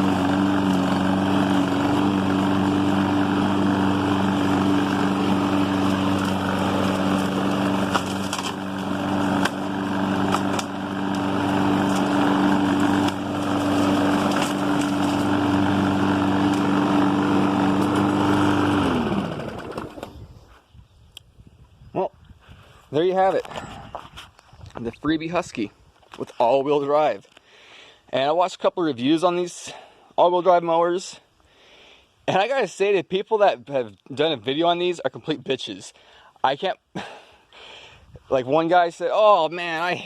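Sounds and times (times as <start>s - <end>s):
engine winding down: 0.0s - 20.2s
lawn mower engine running: 0.0s - 20.4s.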